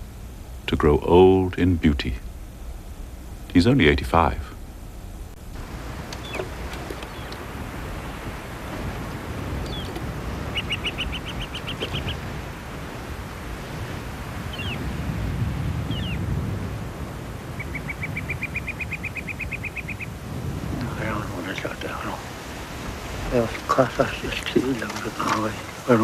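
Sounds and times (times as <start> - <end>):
steady low rumble: 0.0 - 26.0
songbird trilling: 5.7 - 12.9, 14.5 - 14.8, 15.9 - 16.3, 17.5 - 20.2.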